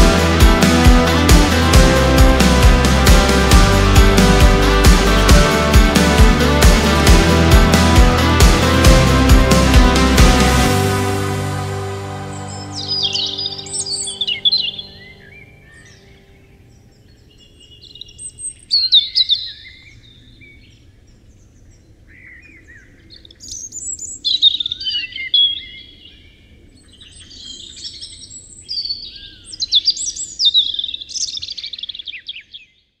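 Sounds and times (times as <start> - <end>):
songbird chirping: 10.9 - 26.2.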